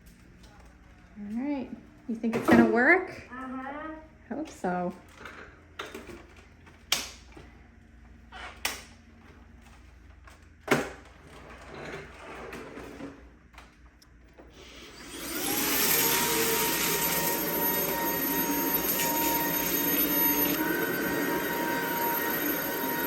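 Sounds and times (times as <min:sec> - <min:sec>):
cordless vacuum cleaner whirring: 0:14.6 - 0:23.0.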